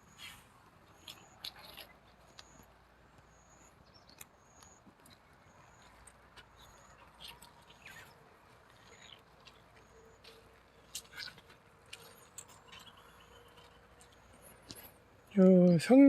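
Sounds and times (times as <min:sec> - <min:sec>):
small clicks and rustles: 0:00.2 - 0:03.3, 0:03.9 - 0:15.6.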